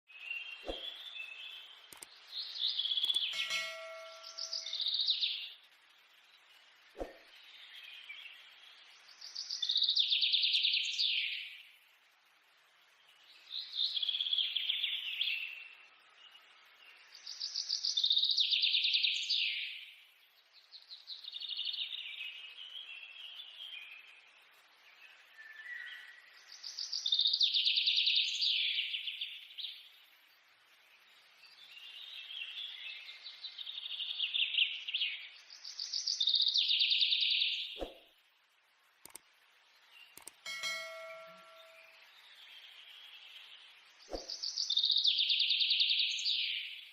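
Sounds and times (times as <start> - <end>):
songbird trilling: 2.7 - 5.4.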